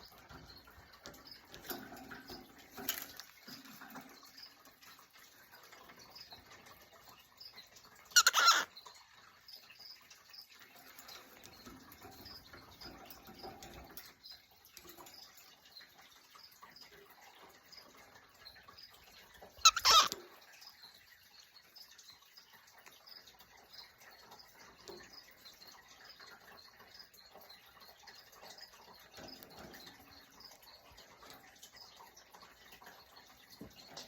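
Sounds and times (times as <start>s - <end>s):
cockatiel calls: 8.2s - 8.7s, 19.6s - 20.2s.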